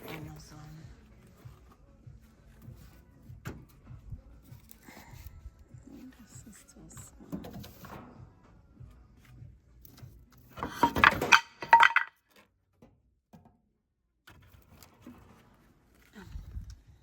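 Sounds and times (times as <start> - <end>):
hard objects clinking and rattling: 10.6 - 12.1.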